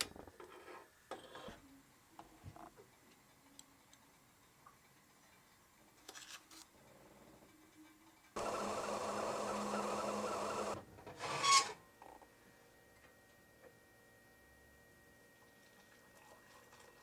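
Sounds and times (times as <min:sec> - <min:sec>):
small machine whirring: 0:07.5 - 0:12.3.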